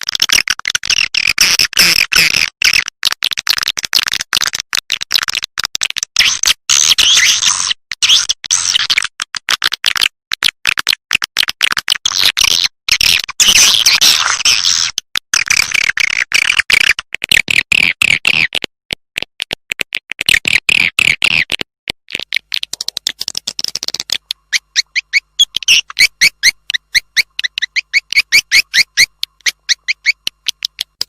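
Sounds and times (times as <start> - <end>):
swiftlets twittering and chirping: 22.2 - 31.0.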